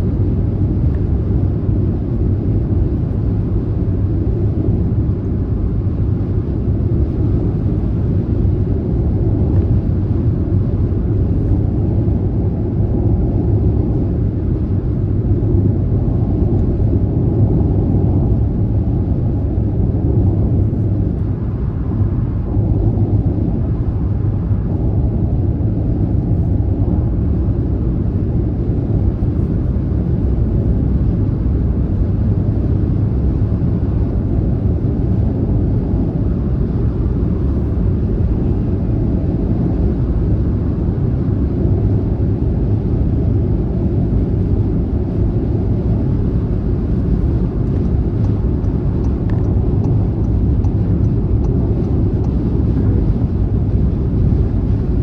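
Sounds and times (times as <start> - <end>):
car engine drone: 41.5 - 55.0.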